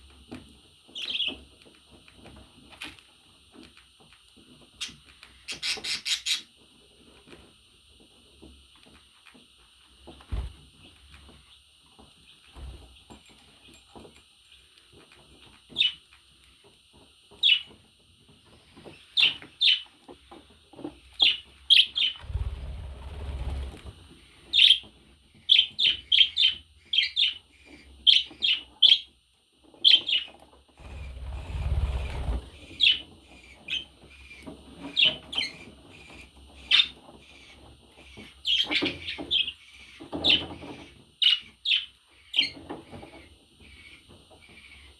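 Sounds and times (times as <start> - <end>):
budgerigar chirping: 24.5 - 29.1
low rumble: 30.8 - 32.9.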